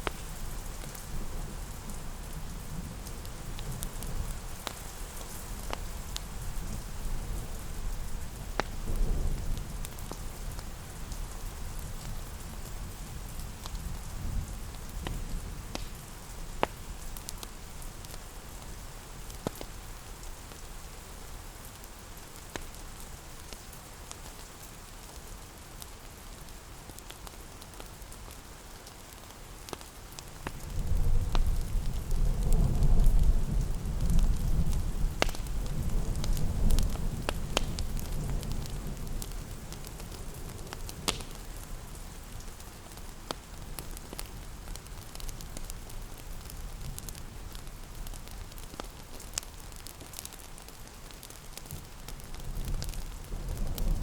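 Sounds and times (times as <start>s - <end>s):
rain on a surface: 0.0s - 54.0s
sharp ticks and pops: 3.2s - 6.3s, 8.6s - 11.3s, 14.8s - 18.3s, 19.3s - 19.8s, 25.8s - 41.7s, 42.6s - 54.0s
thunder rumble: 52.5s - 54.0s.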